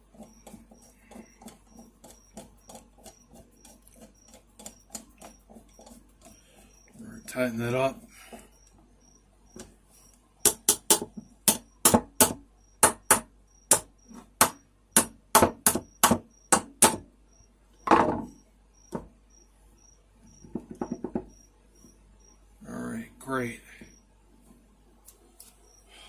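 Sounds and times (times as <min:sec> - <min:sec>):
sharp clicking knocks: 0:10.4 - 0:17.1, 0:20.4 - 0:21.4.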